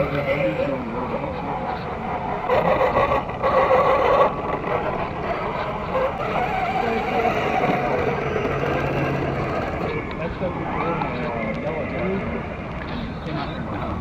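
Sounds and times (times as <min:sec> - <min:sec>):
toy truck electric motors whirring: 0:02.0 - 0:10.1.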